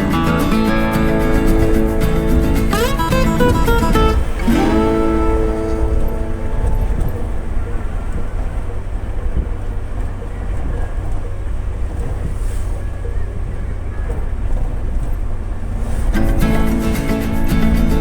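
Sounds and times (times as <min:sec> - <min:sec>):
guitar music: 0:00.0 - 0:08.6, 0:16.2 - 0:18.0
vehicle rumbling on the move: 0:00.0 - 0:18.0
wind buffeting microphone: 0:00.0 - 0:18.0.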